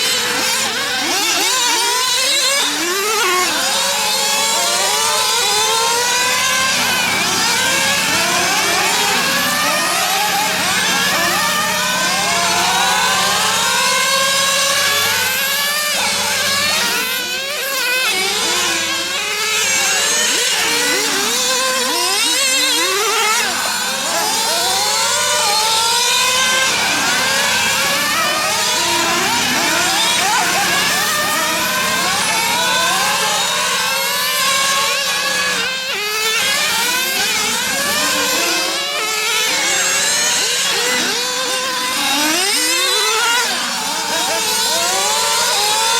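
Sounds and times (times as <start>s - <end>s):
rc car engines revving: 0.0s - 45.9s.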